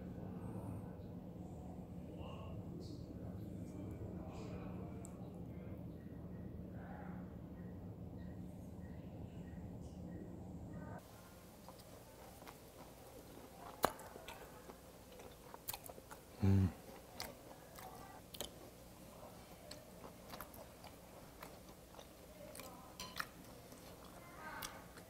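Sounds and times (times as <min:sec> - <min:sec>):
chewing raw meat: 0:11.0 - 0:25.0
person humming: 0:16.4 - 0:16.8.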